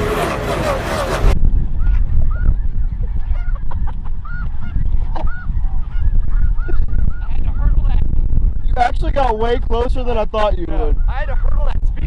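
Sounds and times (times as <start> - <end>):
constant low rumble: 0.0 - 12.0
geese honking: 3.2 - 3.6.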